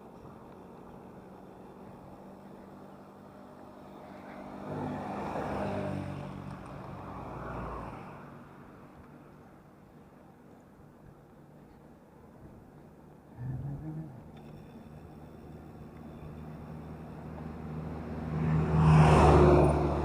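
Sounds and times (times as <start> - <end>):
steady engine hum: 0.0 - 20.0
vehicle engine passing: 15.8 - 20.0.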